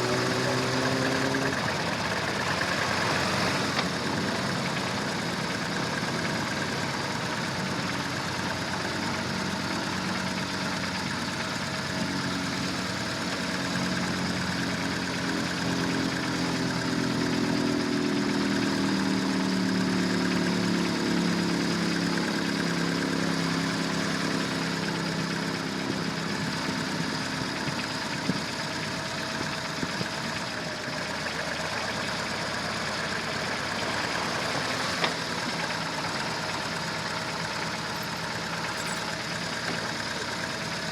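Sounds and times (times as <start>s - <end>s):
stronger engine hum: 0.0s - 21.6s
vehicle engine running: 0.0s - 40.9s.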